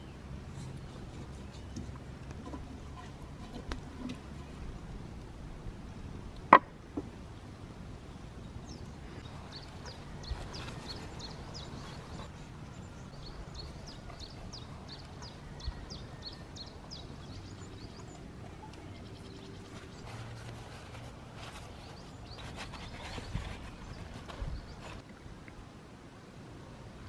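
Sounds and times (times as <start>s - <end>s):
small bird chirping: 8.6s - 25.0s.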